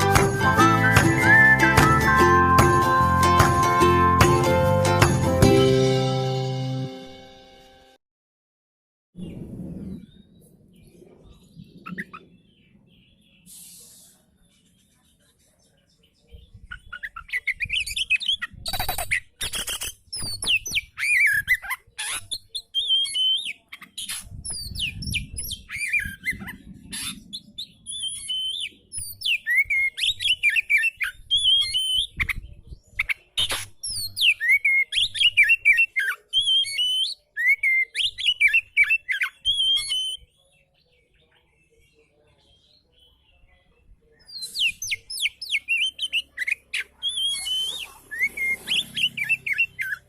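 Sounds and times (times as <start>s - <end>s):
songbird whistles and trills: 0.0s - 3.5s, 16.4s - 40.8s, 44.2s - 50.0s.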